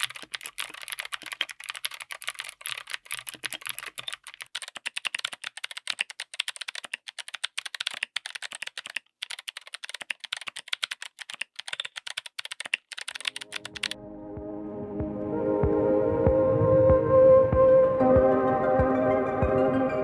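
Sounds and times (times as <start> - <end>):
mechanical keyboard typing: 0.0 - 14.0.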